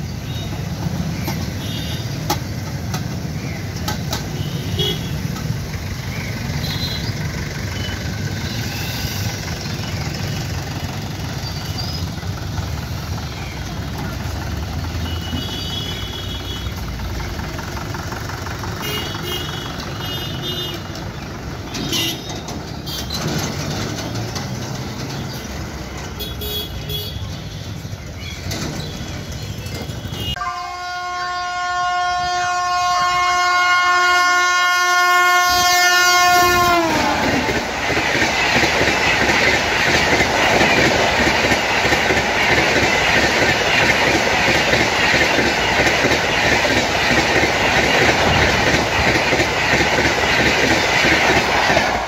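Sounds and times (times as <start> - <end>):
train wheels rumbling on rails: 0.0 - 30.4, 31.3 - 52.0
locomotive horn blast: 4.3 - 5.3, 18.8 - 20.9, 30.0 - 37.5.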